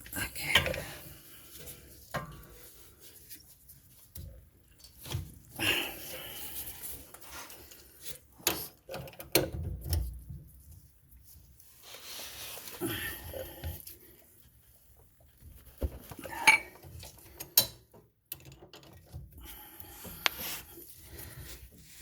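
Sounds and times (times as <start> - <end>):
metal tools clinking and scraping: 16.2 - 17.7.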